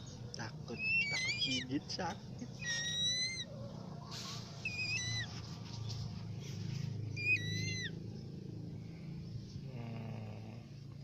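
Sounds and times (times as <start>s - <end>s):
steady low hum: 0.0s - 11.0s
bird whistled calls: 0.7s - 1.7s, 2.6s - 3.5s, 4.6s - 5.3s, 7.1s - 8.0s.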